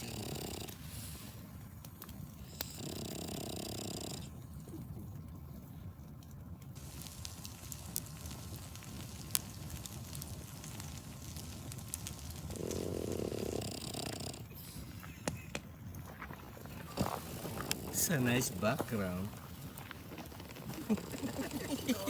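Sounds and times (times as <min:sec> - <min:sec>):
campfire crackling and popping: 0:00.0 - 0:22.0
low steady rumble: 0:04.2 - 0:13.6.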